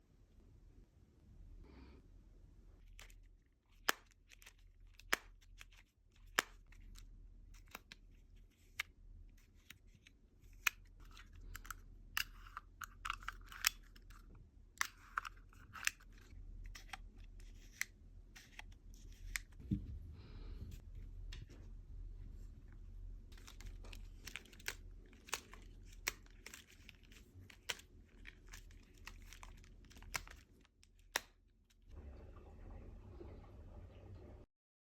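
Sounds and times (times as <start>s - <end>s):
plastic clicks and snaps: 2.9s - 8.0s, 9.6s - 19.6s, 23.4s - 31.8s.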